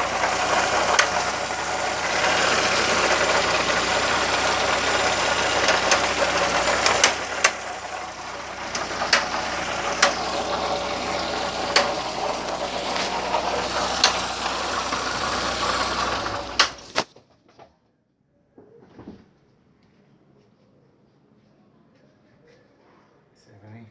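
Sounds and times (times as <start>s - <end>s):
car engine running: 0.0s - 17.1s
engine clicks or knocks: 0.0s - 17.1s.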